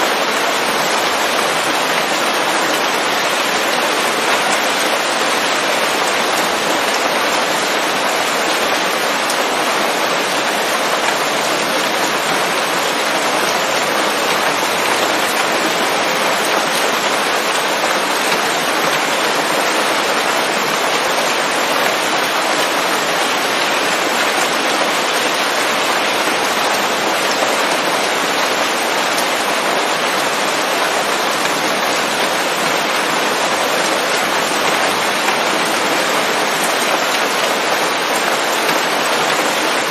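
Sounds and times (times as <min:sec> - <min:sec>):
heavy rain falling on leaves: 0:00.0 - 0:39.9.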